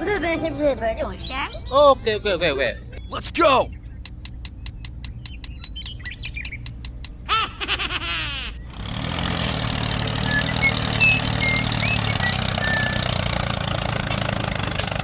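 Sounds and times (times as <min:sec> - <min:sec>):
bird chirps: 0:00.8 - 0:01.9, 0:02.9 - 0:06.8, 0:10.2 - 0:13.2
engine running: 0:03.0 - 0:15.0.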